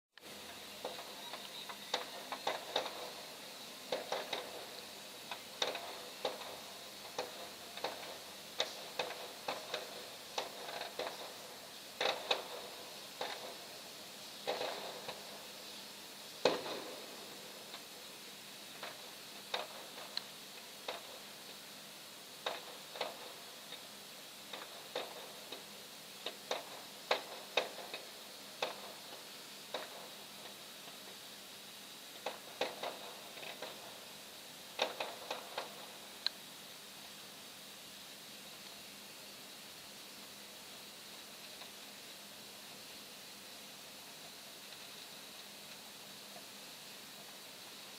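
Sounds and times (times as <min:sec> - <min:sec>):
faint steady hiss: 0:00.1 - 0:47.9
distant fireworks popping: 0:00.2 - 0:15.8, 0:16.4 - 0:21.6, 0:22.4 - 0:31.2, 0:32.2 - 0:36.3.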